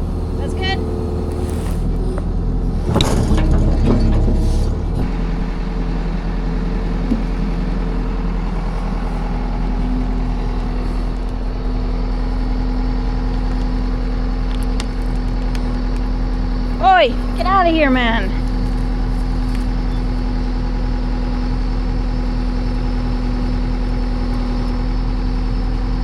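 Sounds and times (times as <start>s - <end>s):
heavy machinery engine running: 0.0s - 26.0s.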